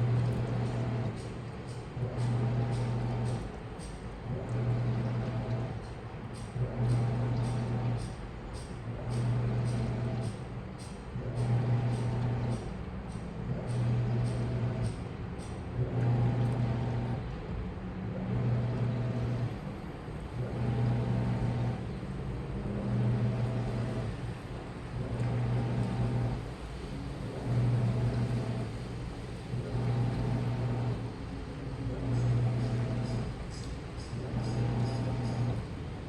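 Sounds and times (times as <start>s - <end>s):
steady churning noise: 0.0s - 8.0s
washing machine drum turning: 0.0s - 12.8s, 13.6s - 15.1s, 32.0s - 36.0s.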